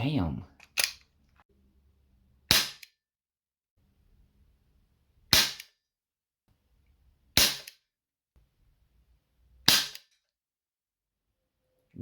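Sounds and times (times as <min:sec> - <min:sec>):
airsoft revolver shots: 0:02.5 - 0:02.9, 0:05.3 - 0:05.8, 0:07.4 - 0:07.8, 0:09.6 - 0:10.1.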